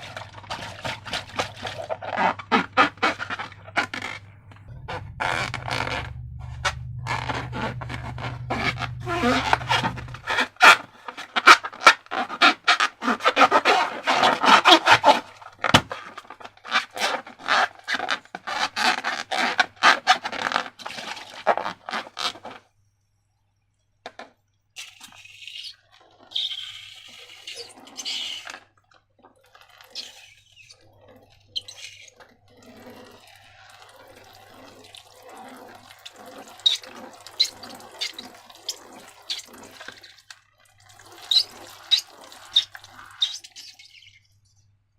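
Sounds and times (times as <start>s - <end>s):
slime squelching: 0.0s - 16.2s, 27.3s - 44.6s.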